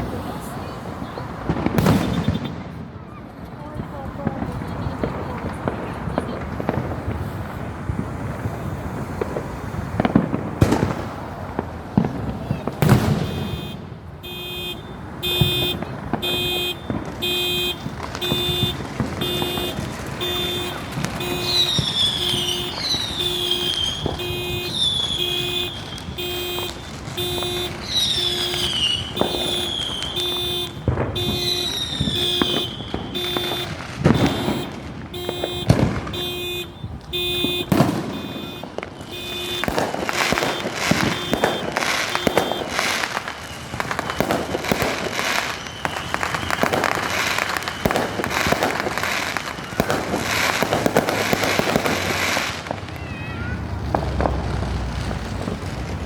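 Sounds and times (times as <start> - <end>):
firework bangs and pops: 0.0 - 56.0
car alarm beeping and whooping: 1.8 - 2.6, 13.0 - 50.0.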